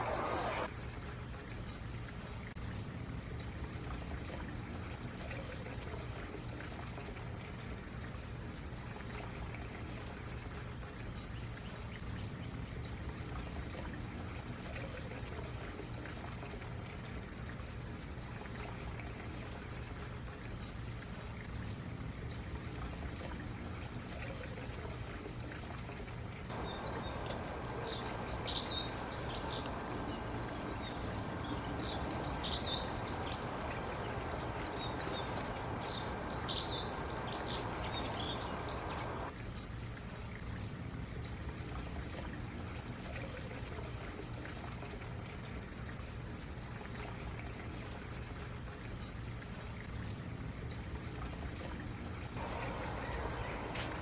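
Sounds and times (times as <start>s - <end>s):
stream water over rocks: 0.0s - 1.4s, 12.8s - 54.0s
small bird chirping: 26.5s - 39.3s.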